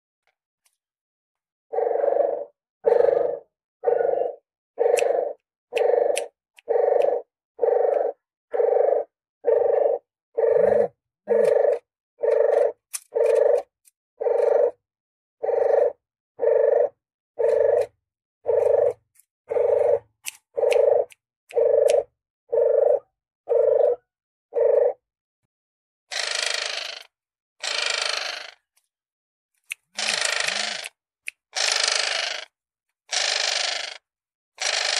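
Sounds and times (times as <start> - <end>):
dove cooing: 1.7 - 14.8, 15.4 - 25.0.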